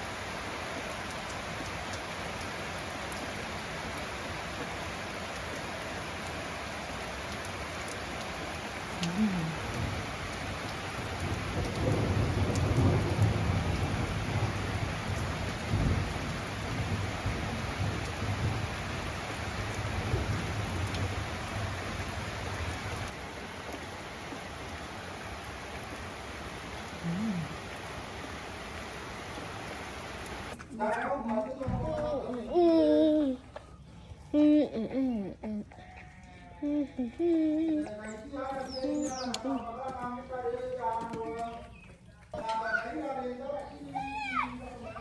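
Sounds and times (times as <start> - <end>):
steady rain falling: 0.0 - 45.0
rolling thunder: 11.0 - 21.7.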